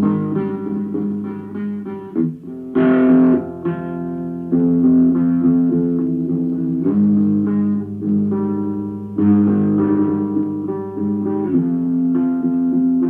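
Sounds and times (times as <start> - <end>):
slow held guitar chords: 0.0 - 13.0.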